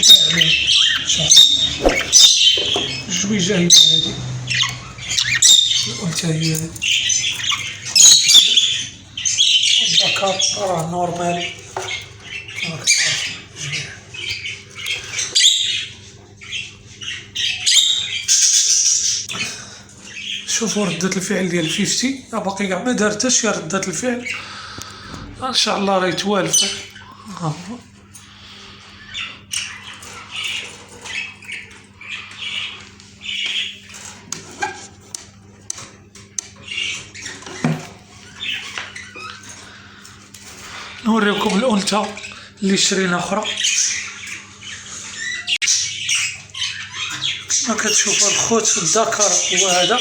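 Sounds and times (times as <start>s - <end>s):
budgerigar squawking: 0.0s - 19.3s, 43.4s - 50.0s
budgerigars chirping and chattering: 0.0s - 50.0s.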